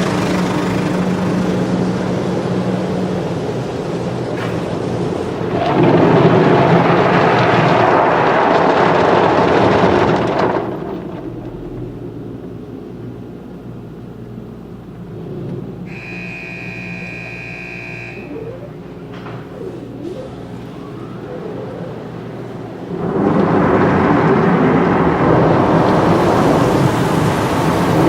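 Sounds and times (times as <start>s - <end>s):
car wash machinery humming: 0.0s - 28.0s
car wash machinery rushing: 0.0s - 28.0s
steady high tone: 15.9s - 22.8s.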